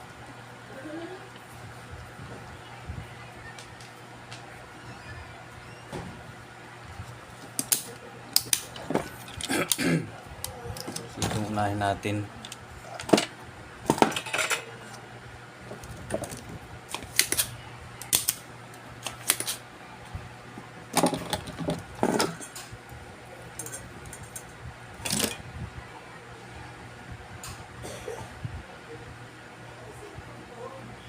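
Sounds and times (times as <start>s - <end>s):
metal tools clinking on workbench: 14.0s - 14.7s.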